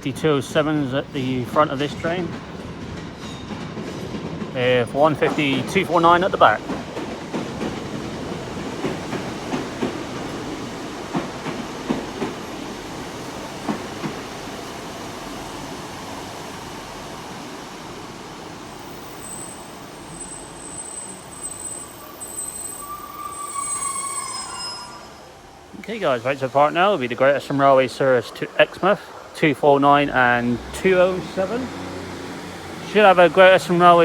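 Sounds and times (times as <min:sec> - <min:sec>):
train rumble: 0:00.0 - 0:34.0
train wheels knocking over rail joints: 0:01.9 - 0:12.6
high-pitched wheel squeals: 0:19.1 - 0:25.7.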